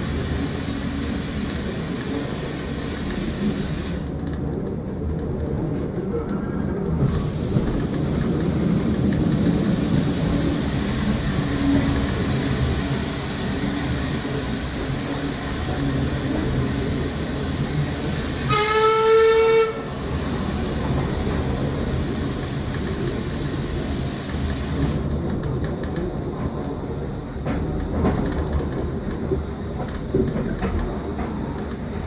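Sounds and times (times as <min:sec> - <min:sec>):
train rumble and wheel noise: 0:00.0 - 0:32.0
train warning blast: 0:18.0 - 0:20.1.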